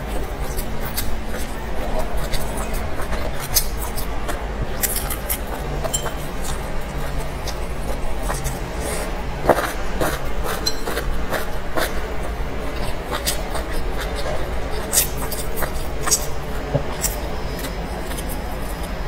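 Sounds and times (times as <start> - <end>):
steady low hum: 0.0 - 19.0
chewing with wet mouth clicks: 0.1 - 8.6, 12.7 - 19.0.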